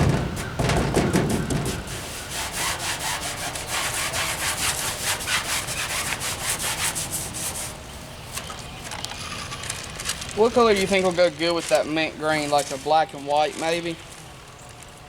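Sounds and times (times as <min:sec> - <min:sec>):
rubbing strokes on a surface: 0:00.4 - 0:07.8.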